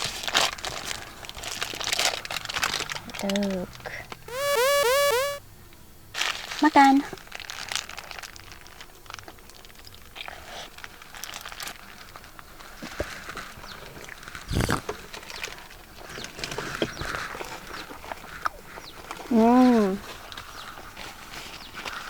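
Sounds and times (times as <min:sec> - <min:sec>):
person biting and chewing burger: 0:14.5 - 0:14.8.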